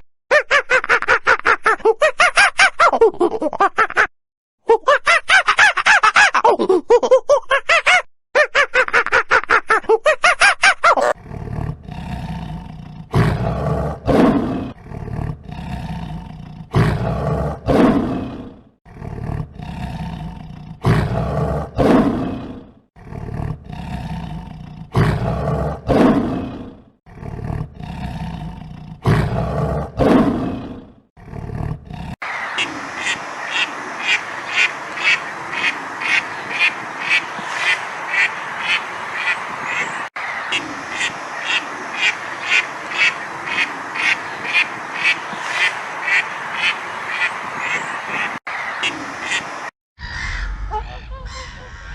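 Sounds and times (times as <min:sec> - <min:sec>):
lion roaring: 0:11.2 - 0:32.2
ducks quacking: 0:32.3 - 0:51.9.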